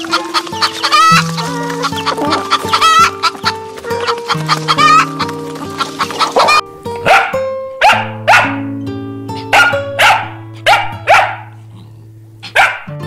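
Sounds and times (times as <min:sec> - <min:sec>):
background music with held notes: 0:00.0 - 0:13.0
dog barking: 0:06.2 - 0:08.7, 0:09.4 - 0:11.7, 0:12.4 - 0:13.0.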